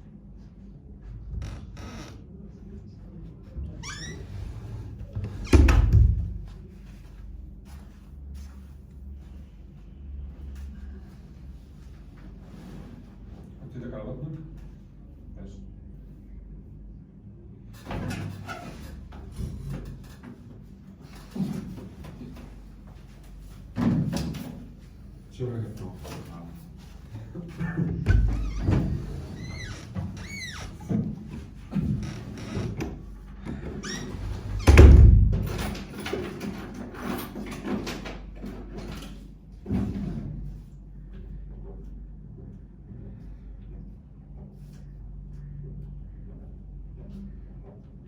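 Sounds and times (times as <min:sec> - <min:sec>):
heavy thump: 0:34.6 - 0:35.5.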